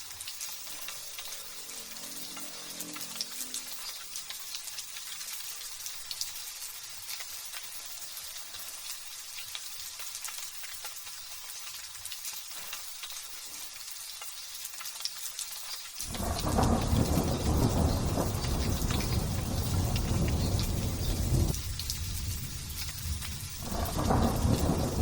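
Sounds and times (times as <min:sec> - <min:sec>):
light drizzle hissing: 0:00.0 - 0:25.0
thunder rumbling: 0:16.0 - 0:25.0.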